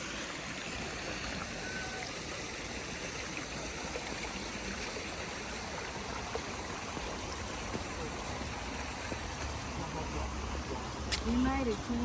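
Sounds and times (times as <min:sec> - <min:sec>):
stream water over rocks: 0:00.0 - 0:12.0.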